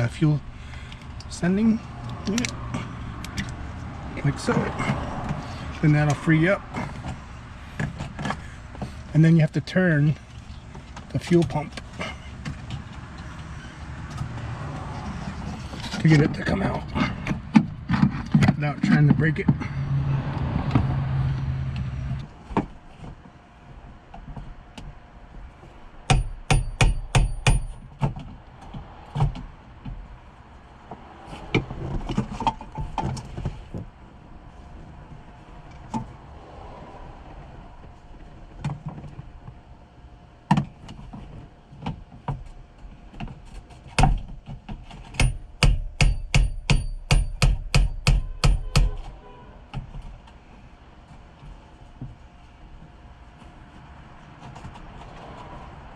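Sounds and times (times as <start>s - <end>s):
screwdriver knocking on metal ring: 26.1s - 27.9s, 45.1s - 49.0s.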